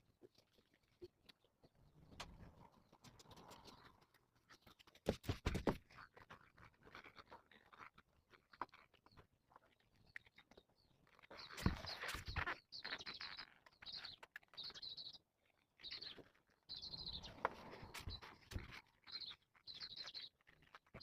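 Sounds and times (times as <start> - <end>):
squeaky teeth scraping: 0.3 - 21.0.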